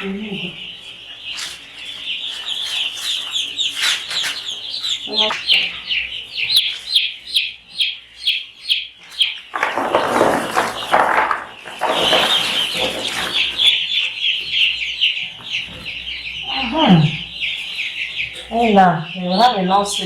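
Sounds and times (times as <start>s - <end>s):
chicks peeping: 0.0s - 20.0s
loud rustling: 9.5s - 14.0s.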